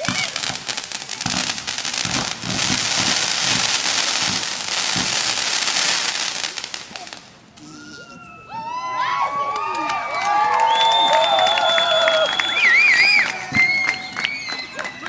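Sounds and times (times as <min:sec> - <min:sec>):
fireworks booms: 0:00.0 - 0:08.1, 0:12.5 - 0:15.0
fireworks crackling: 0:00.0 - 0:15.0
onlookers cheering and whistling: 0:07.6 - 0:15.0.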